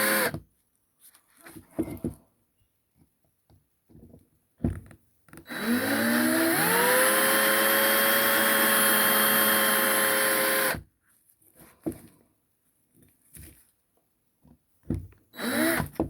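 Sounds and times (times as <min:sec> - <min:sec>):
electric drill whining: 0:00.0 - 0:00.3, 0:05.5 - 0:10.8, 0:15.4 - 0:16.0
drill bit skipping on metal: 0:05.5 - 0:10.8, 0:15.4 - 0:15.8.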